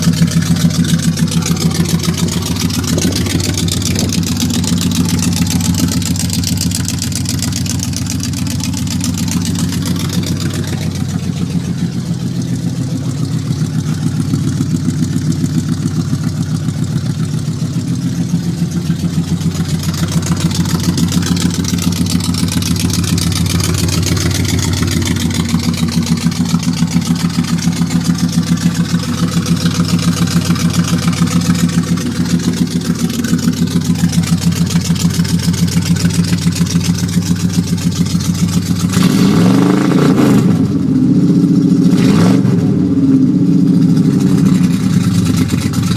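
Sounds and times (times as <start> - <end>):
car engine idling: 0.0 - 45.9
engine revving: 0.0 - 45.9.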